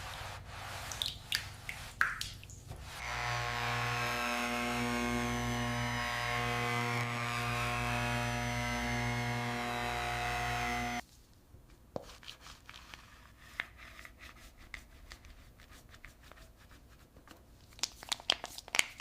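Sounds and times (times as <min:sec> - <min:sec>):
power tool humming: 0:03.0 - 0:11.0.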